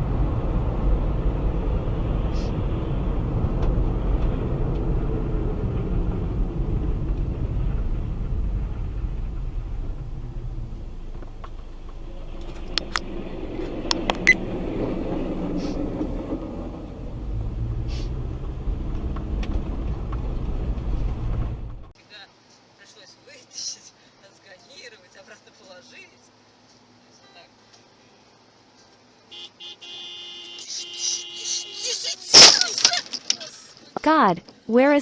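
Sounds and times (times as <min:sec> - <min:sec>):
car engine: 0:00.0 - 0:21.9
road rumble: 0:00.0 - 0:22.0
sharp clicks or knocks: 0:12.7 - 0:13.0, 0:13.9 - 0:14.3.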